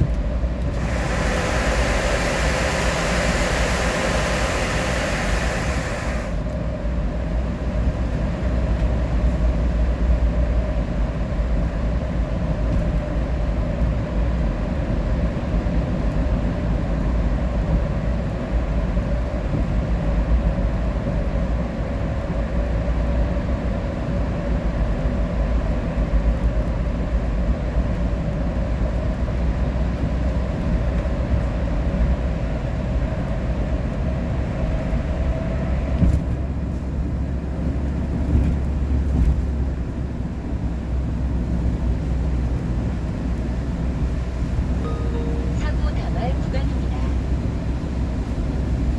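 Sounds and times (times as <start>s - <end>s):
vehicle rumble from inside cab: 0.0s - 48.9s
faint constant drone: 44.8s - 47.4s.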